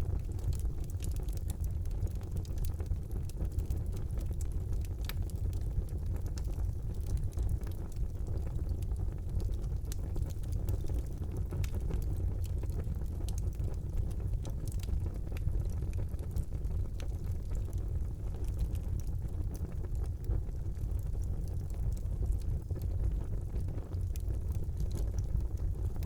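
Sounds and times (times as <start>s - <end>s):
fire crackling in a fireplace: 0.0s - 26.0s.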